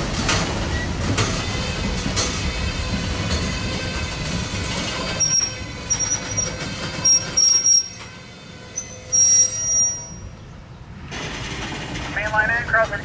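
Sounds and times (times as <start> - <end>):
freight train rolling past: 0.0 - 13.0
high-pitched wheel squeals: 5.2 - 10.4.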